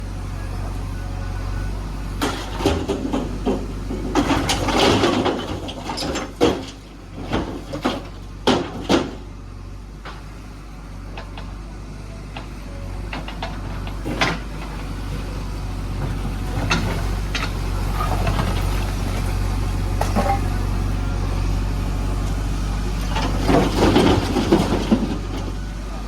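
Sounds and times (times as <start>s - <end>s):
diesel engine running: 0.0s - 26.0s
metal clanks and rattles: 2.2s - 9.3s, 23.0s - 25.6s.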